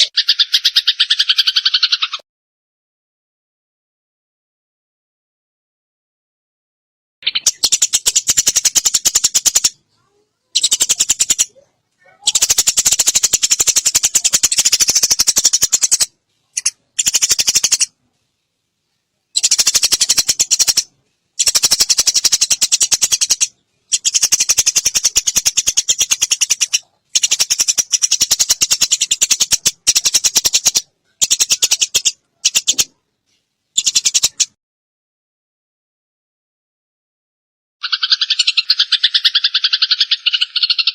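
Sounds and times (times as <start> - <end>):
sparrows chattering harshly: 0.0 - 2.2, 7.2 - 18.0, 19.3 - 33.0, 33.8 - 34.6, 37.8 - 40.9.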